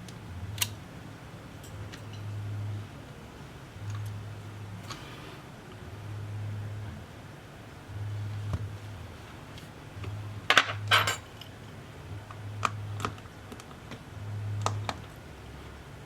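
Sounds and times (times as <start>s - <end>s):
low hum: 0.0s - 13.4s, 14.1s - 16.0s
metal tools clinking on surface: 10.5s - 11.5s.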